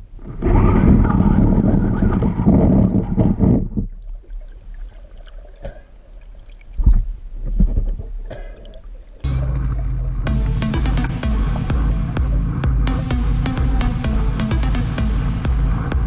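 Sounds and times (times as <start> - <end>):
water sloshing and gurgling: 0.0 - 10.5
low thumps: 9.3 - 16.0.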